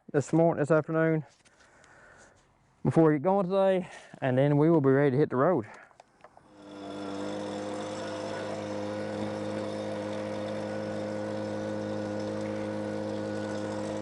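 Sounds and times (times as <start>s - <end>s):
leaf blower running: 6.4s - 14.0s.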